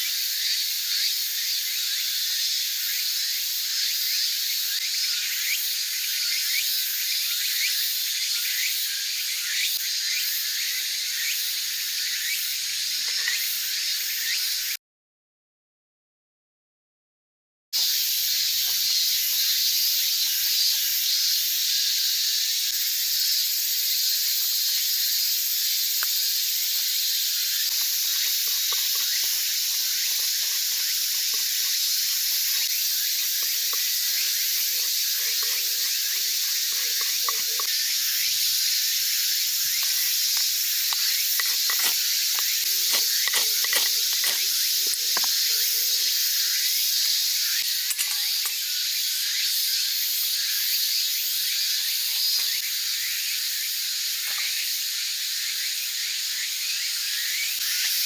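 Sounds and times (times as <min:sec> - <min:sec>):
wood fire crackling and hissing: 0:25.4 - 0:47.2.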